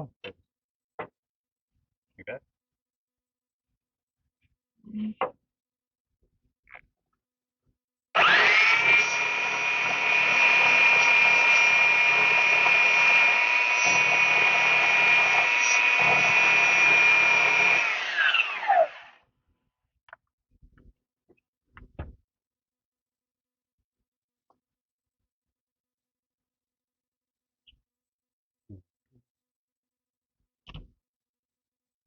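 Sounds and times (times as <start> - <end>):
power tool motor whining: 8.2 - 19.2.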